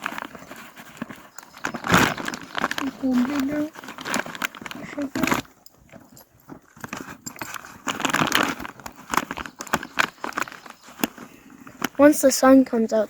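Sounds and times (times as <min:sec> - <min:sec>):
animals crunching and chewing grain: 0:00.0 - 0:13.0.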